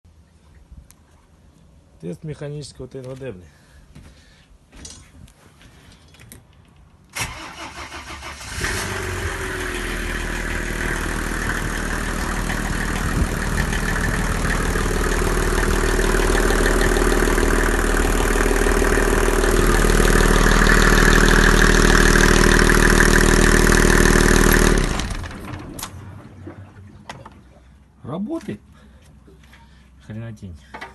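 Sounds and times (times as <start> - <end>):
diesel engine cranking: 7.2 - 26.4
diesel engine running: 7.3 - 26.4.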